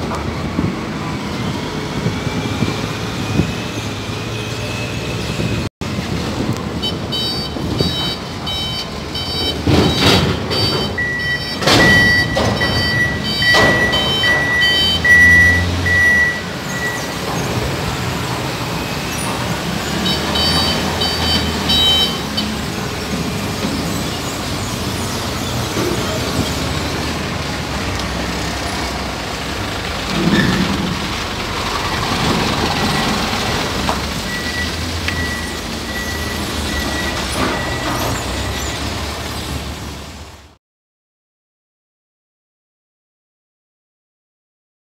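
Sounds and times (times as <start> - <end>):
diesel engine rumble: 0.0 - 40.6
reversing alarm beeping: 7.1 - 17.3, 18.6 - 22.5, 34.2 - 39.0.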